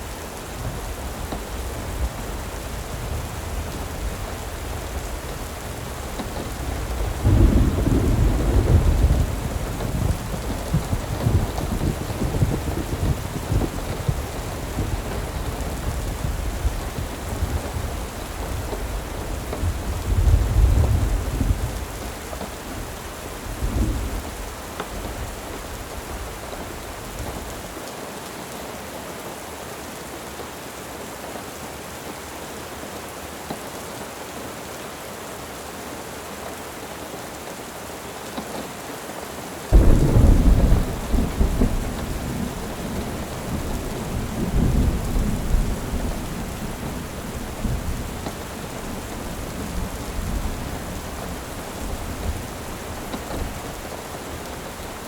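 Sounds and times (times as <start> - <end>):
steady rain: 0.0 - 55.0
thunder rumbling: 0.6 - 22.1, 39.7 - 55.0
loud thunderclap: 6.2 - 17.9, 39.8 - 54.9.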